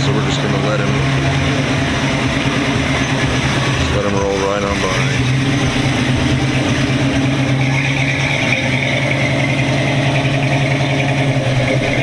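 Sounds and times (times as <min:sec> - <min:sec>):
car engine rolling past: 0:00.0 - 0:12.0.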